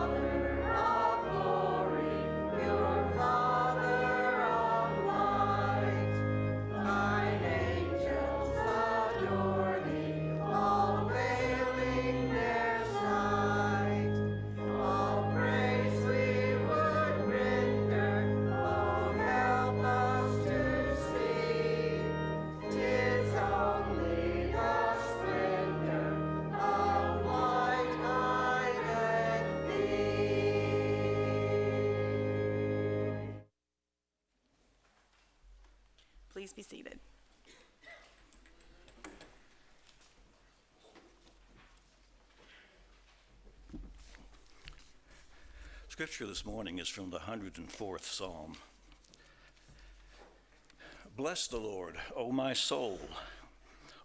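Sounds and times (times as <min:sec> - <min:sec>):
low accompanying notes: 0:00.0 - 0:33.4
voices singing a hymn: 0:00.0 - 0:33.4.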